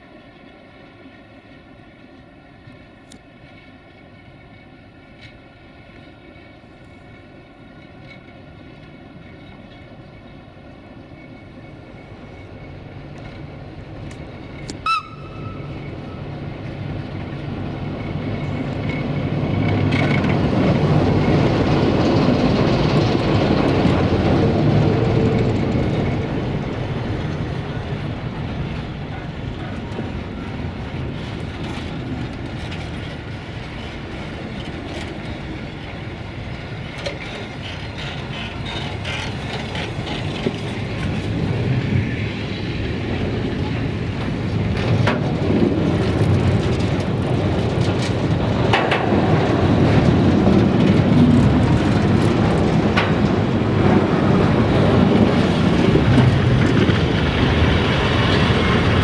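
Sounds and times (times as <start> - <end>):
diesel locomotive engine drone: 0.0 - 59.0
wagon wheels clacking over rail joints: 16.6 - 59.0.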